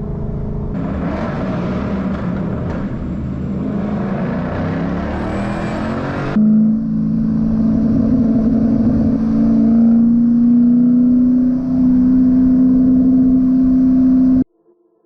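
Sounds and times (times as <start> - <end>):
car engine accelerating: 0.0 - 14.4.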